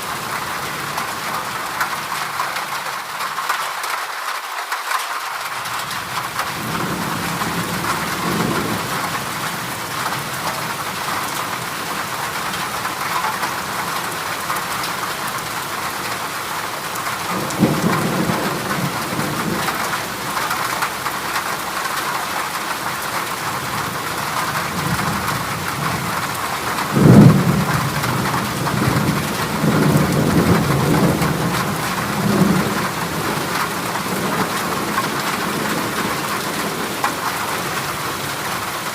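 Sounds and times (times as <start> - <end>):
heavy rain on a metal roof: 0.0 - 38.9
thunder rolling: 6.4 - 10.7, 17.3 - 21.4, 23.8 - 37.2.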